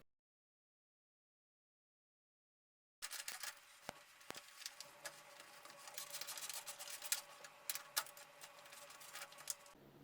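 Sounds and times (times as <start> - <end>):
small metal clicks and scraping: 3.0 - 9.8.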